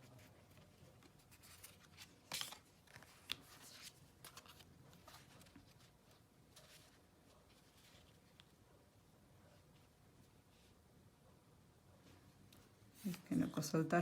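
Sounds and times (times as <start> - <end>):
cards rustling: 0.1 - 8.5.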